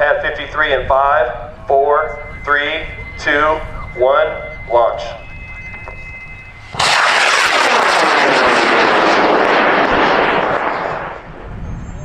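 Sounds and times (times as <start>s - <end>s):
rocket motor burning with rushing noise: 6.4s - 11.4s.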